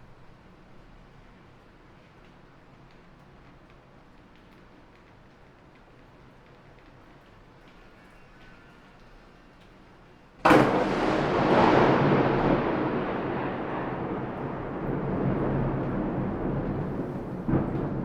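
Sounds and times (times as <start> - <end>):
faint steady rain: 0.0 - 18.0
thunderclap and rumble: 10.4 - 18.0.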